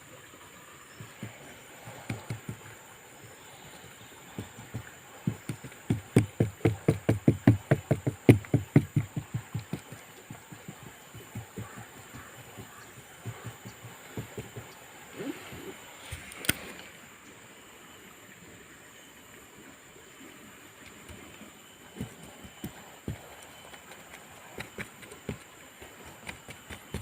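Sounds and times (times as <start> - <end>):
rapid dull knocks: 0.9 - 2.9, 3.8 - 14.8, 21.0 - 27.0.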